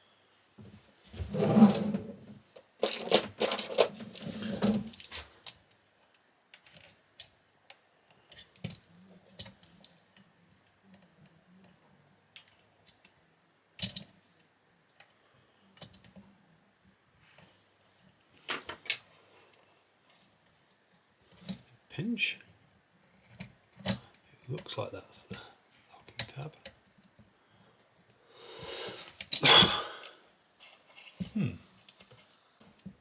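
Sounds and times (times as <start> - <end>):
metal tools clinking and rattling: 2.8 - 5.2.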